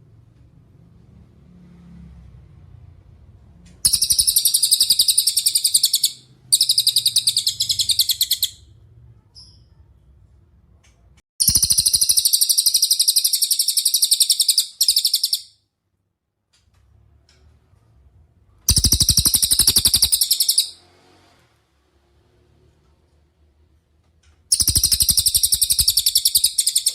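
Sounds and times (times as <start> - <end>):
songbird singing high trills: 24.5 - 26.9.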